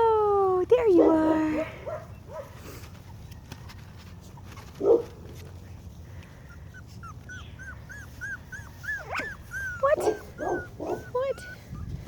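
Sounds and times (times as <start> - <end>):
puppy barking: 4.8 - 5.2, 9.0 - 11.3.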